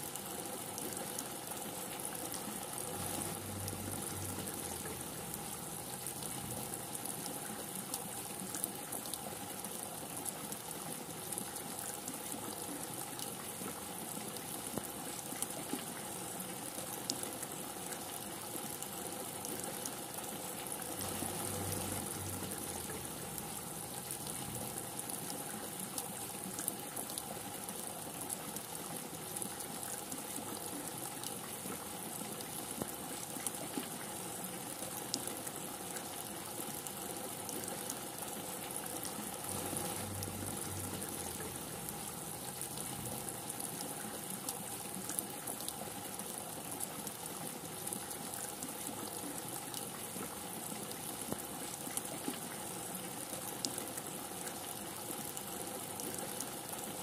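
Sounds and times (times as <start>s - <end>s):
rain hissing: 2.7s - 7.2s, 20.8s - 25.2s, 39.2s - 43.8s
raindrops ticking: 39.3s - 43.8s.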